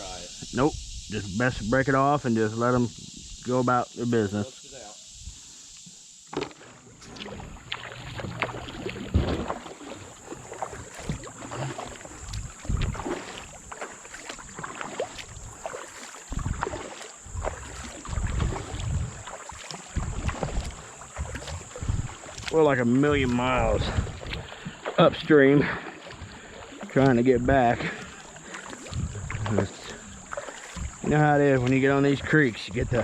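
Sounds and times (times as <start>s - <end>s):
water splashing and sloshing: 0.0s - 33.0s
knocks against kayak hull: 6.3s - 6.6s.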